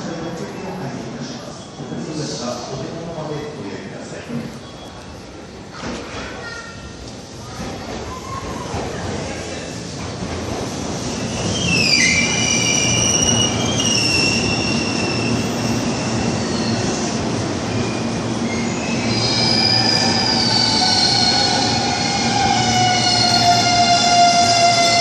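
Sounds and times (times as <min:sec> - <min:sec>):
train wheels squealing on rails: 0:01.2 - 0:02.6, 0:04.4 - 0:05.3, 0:11.0 - 0:25.0.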